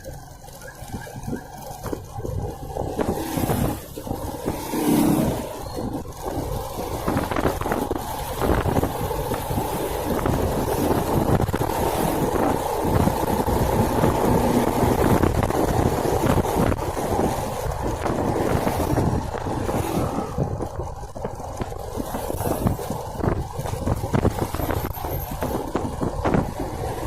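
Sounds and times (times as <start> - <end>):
small motorcycle running: 0.0 - 27.0
wind buffeting microphone: 0.0 - 27.0.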